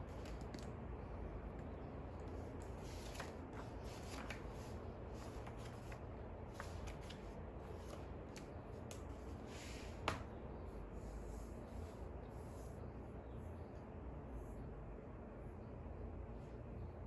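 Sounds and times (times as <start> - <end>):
paper rustling: 0.0 - 0.7, 2.2 - 10.3
low steady hum: 0.0 - 17.0.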